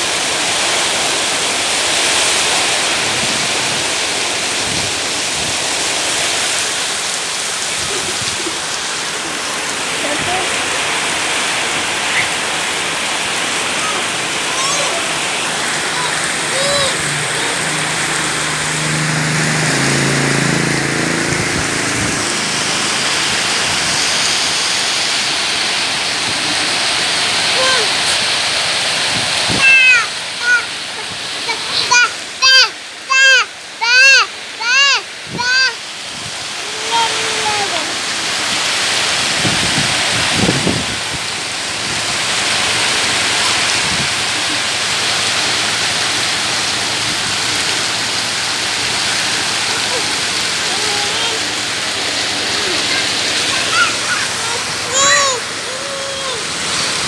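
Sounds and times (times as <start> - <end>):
heavy rain pouring: 0.0 - 57.0
low droning tone: 16.2 - 24.8.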